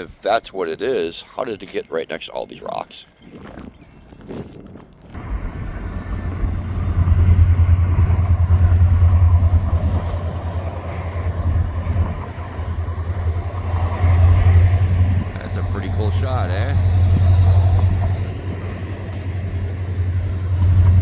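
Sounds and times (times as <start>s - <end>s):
freight train rumbling past: 5.2s - 21.0s.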